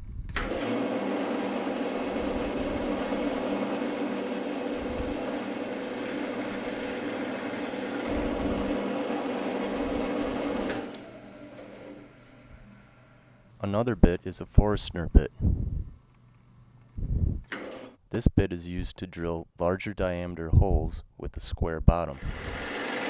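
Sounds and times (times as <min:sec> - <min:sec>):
drill press motor whine: 0:00.3 - 0:13.5, 0:22.2 - 0:23.0.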